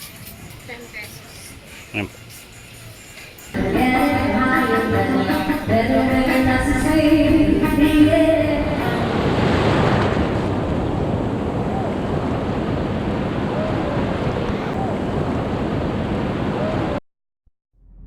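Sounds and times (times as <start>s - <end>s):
background music: 3.6s - 9.3s
ocean surf breaking on beach: 6.3s - 17.0s.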